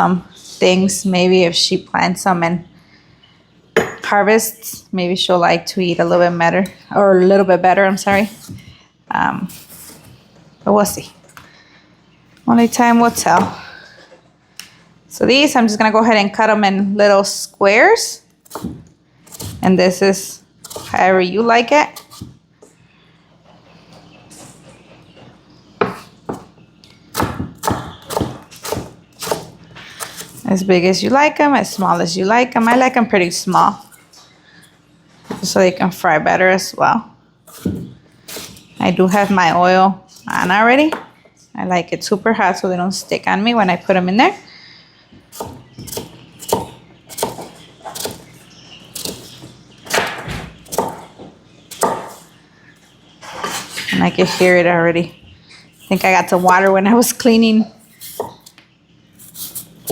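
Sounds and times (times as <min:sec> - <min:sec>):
knife chopping on cutting board: 0:27.2 - 0:30.4, 0:45.4 - 0:48.2, 0:49.9 - 0:52.2.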